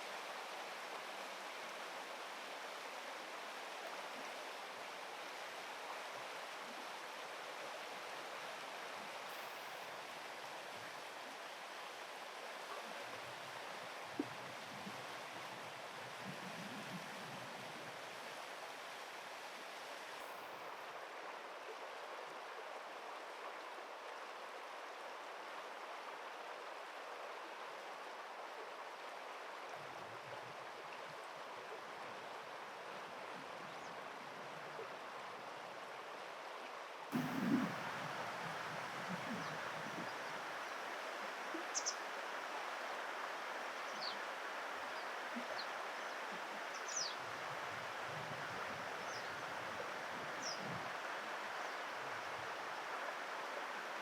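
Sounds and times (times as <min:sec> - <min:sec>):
river water rushing: 0:37.1 - 0:48.1.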